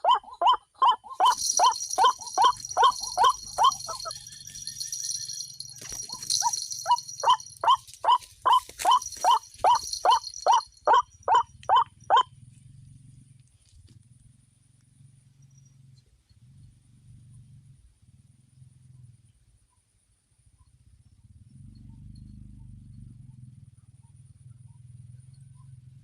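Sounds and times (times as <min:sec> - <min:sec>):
waterhen calling kwak notes: 0:00.0 - 0:12.2.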